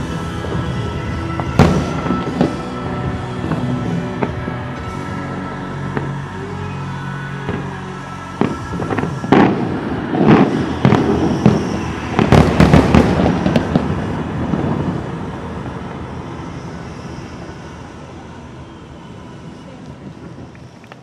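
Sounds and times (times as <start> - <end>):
fireworks bursting with echo: 0.0 - 21.0.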